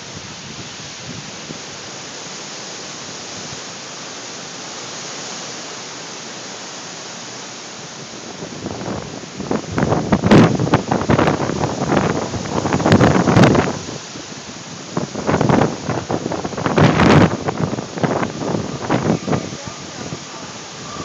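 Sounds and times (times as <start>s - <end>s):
wind buffeting microphone: 0.0s - 1.9s, 8.1s - 21.0s
wind hissing in sand storm: 0.0s - 21.0s.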